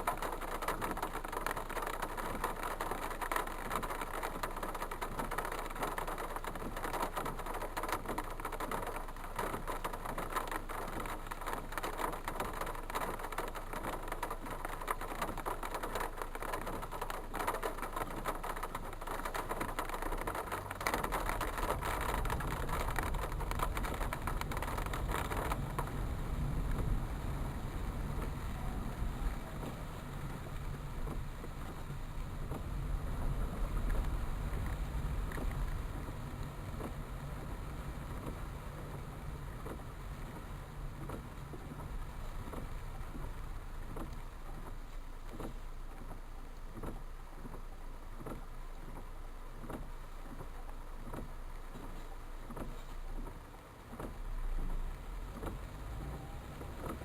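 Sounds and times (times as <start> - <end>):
street traffic: 0.0 - 57.0
deep engine rumble: 18.8 - 45.2, 54.2 - 57.0.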